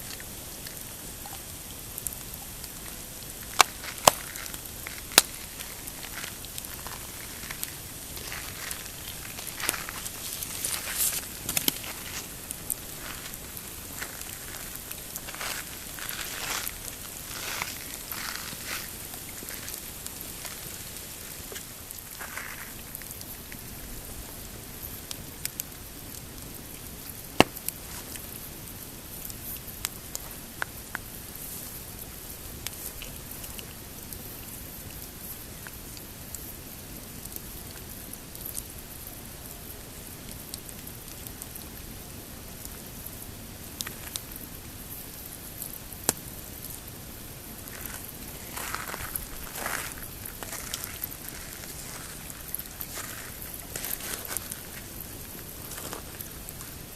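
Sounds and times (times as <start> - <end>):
campfire crackling: 0.0 - 56.9
loud fire snap: 2.0 - 22.2
sharp pops: 3.6 - 5.8.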